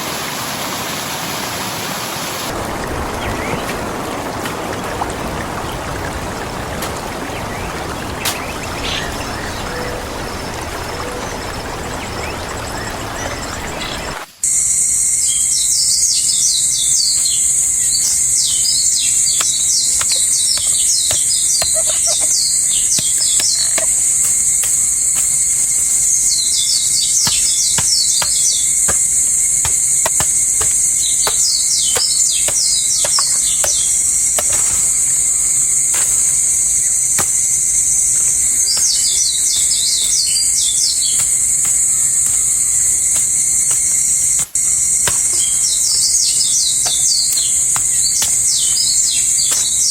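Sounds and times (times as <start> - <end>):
bird song chirps: 7.1 - 49.9
high-pitched insect drone: 14.4 - 49.9.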